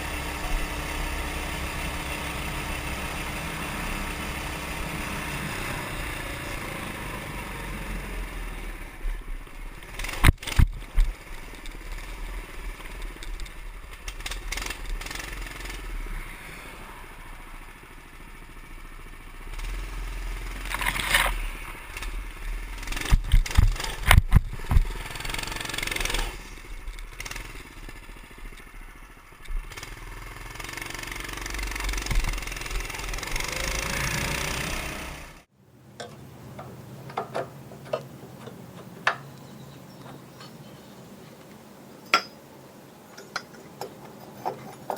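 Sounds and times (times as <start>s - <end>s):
mini bike engine running: 0.0s - 35.5s
sharp knocks and clatter: 22.9s - 26.1s, 36.0s - 39.3s.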